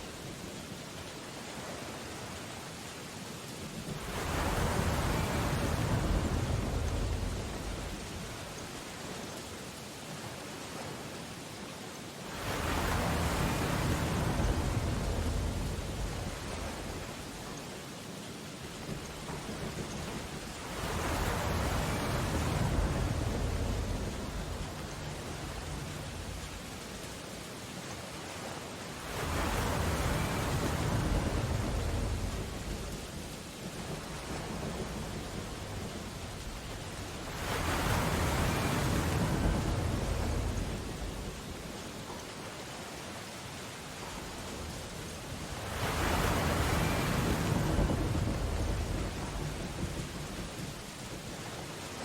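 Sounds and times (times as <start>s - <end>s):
deep storm rumble: 3.9s - 8.8s, 12.4s - 17.6s, 18.8s - 27.2s, 29.1s - 42.2s, 44.0s - 51.6s
rain on window glass: 12.4s - 52.0s
ocean wave crashing: 33.9s - 41.4s, 44.1s - 50.6s.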